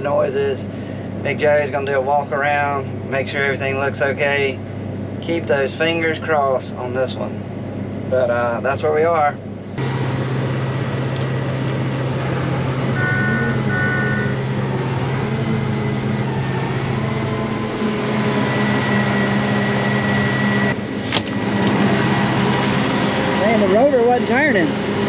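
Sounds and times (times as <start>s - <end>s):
combine harvester droning: 9.0s - 25.0s.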